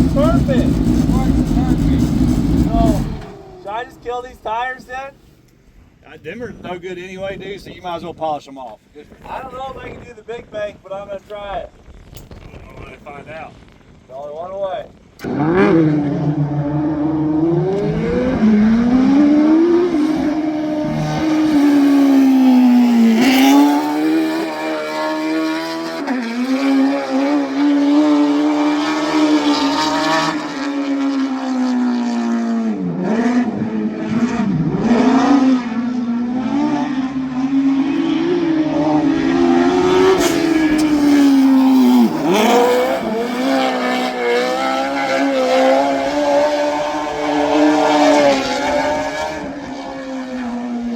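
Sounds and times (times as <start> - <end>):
engines revving: 0.0 - 4.8, 15.2 - 50.9
tires squealing: 37.8 - 49.9.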